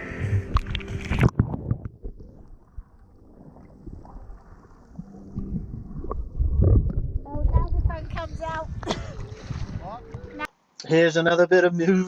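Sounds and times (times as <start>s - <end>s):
low rumble: 0.0s - 10.5s
wind buffeting microphone: 5.4s - 10.5s.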